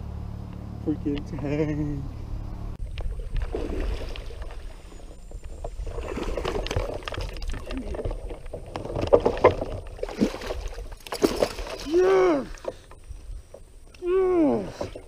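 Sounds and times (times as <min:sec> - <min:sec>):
water splashing and sloshing: 0:02.8 - 0:14.0.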